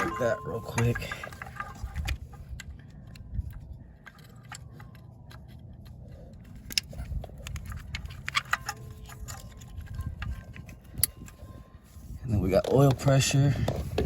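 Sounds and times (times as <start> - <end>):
wiring harness clicks and rattles: 0.0 - 11.4.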